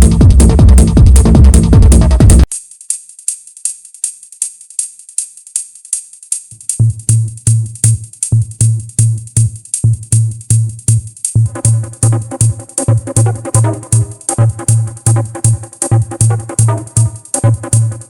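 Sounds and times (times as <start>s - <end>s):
pulsing bass note: 0.0s - 2.5s, 11.5s - 17.9s
ticking hi-hat: 0.0s - 18.0s
synth parts: 11.5s - 18.0s.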